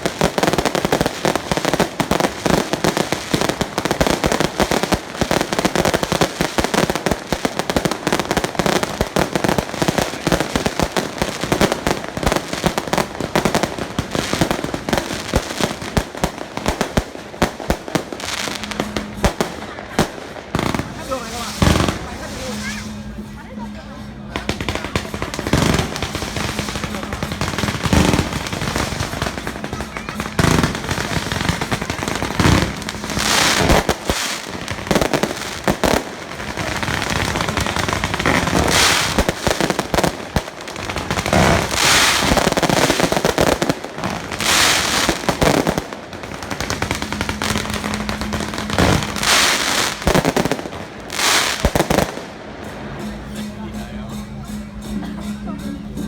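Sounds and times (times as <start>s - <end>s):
firecrackers crackling: 0.0s - 56.0s
firecracker bangs: 24.4s - 53.6s.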